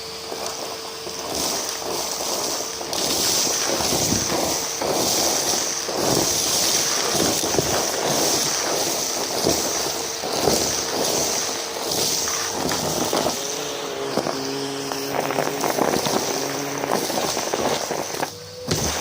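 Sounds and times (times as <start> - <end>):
vacuum cleaner running: 0.0 - 19.0
debris crackling and rattling: 0.3 - 19.0.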